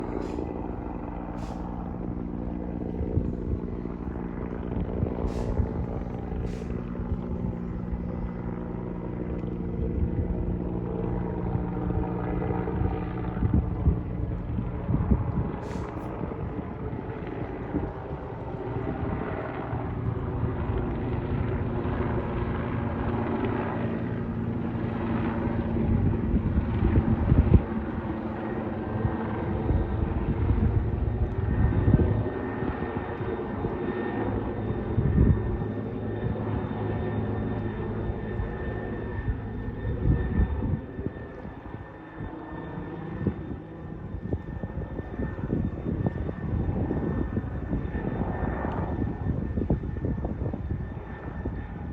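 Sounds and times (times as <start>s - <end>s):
engine drone: 0.0s - 42.0s.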